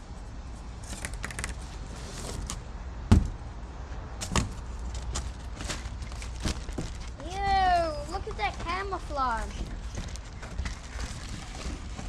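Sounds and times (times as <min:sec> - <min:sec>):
heavy thump: 0:03.1 - 0:03.4.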